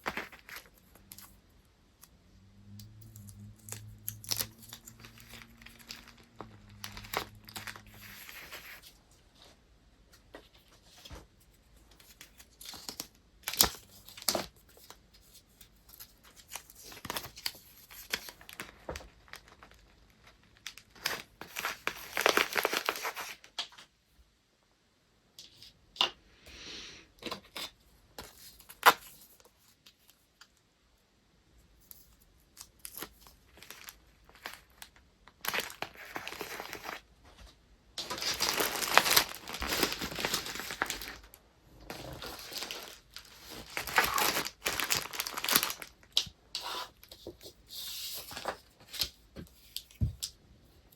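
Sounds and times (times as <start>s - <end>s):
paper crinkling and rustling: 0.0s - 1.4s, 3.1s - 23.8s, 31.8s - 50.3s
paper tearing and crumpling: 38.0s - 41.3s, 41.9s - 46.0s.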